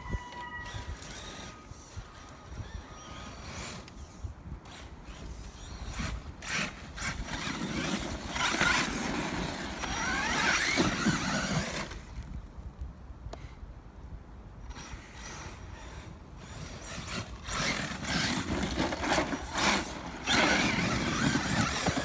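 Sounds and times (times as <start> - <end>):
electric motor whining: 5.5 - 12.1, 14.7 - 22.0.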